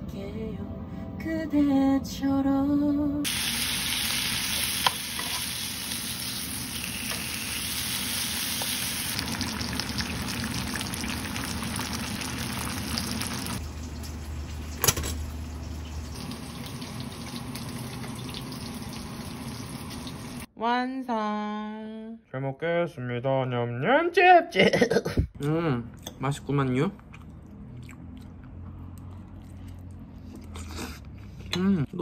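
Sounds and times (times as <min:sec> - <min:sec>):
bacon and eggs sizzling: 0:03.3 - 0:20.5.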